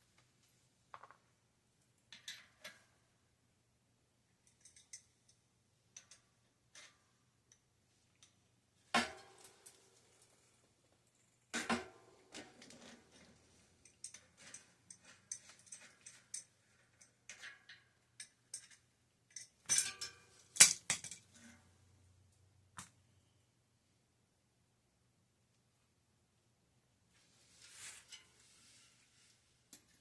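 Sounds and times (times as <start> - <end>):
small metal parts clinking: 4.4 - 6.9, 18.2 - 21.4.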